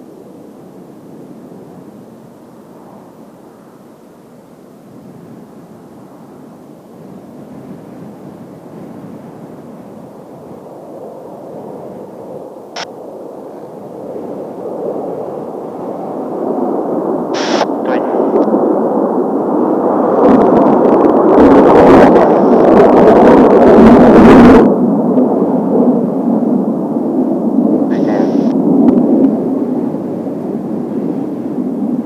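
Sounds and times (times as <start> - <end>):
jet aircraft flying past: 12.3 - 32.0.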